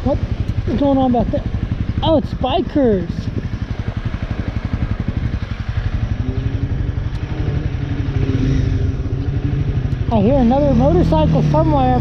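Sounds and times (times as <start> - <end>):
motorcycle engine running: 0.0 - 12.0
steady droning tone: 0.0 - 12.0.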